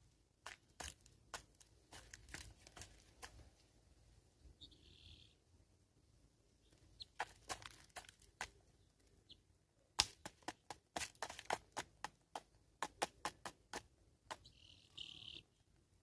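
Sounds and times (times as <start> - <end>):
beak pecking on hard surface: 0.4 - 3.4, 7.0 - 8.6, 10.0 - 14.7.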